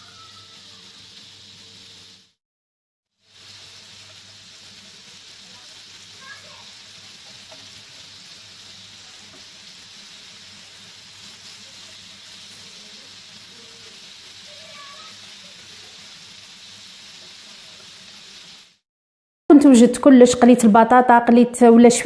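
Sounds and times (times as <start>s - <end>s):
patties sizzling on a griddle: 0.0s - 2.4s, 3.1s - 18.8s.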